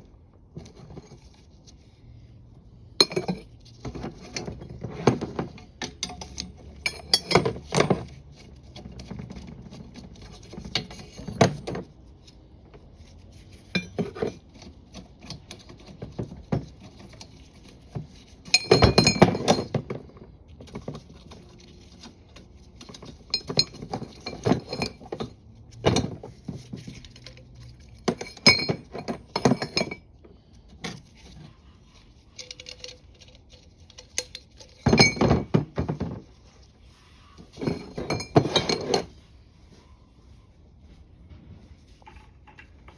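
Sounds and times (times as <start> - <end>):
metal parts clinking: 3.0 - 8.2, 13.7 - 19.9, 21.0 - 30.0, 32.1 - 35.8, 37.5 - 39.1.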